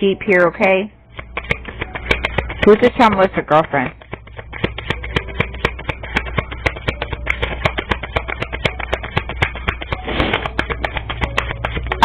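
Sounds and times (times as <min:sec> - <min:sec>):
cards being shuffled: 0:01.1 - 0:12.0.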